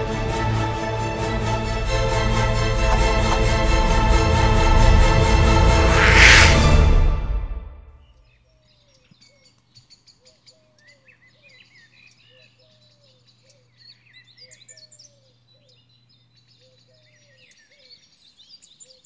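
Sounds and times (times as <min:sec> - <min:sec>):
small birds chirping: 0:08.2 - 0:19.0.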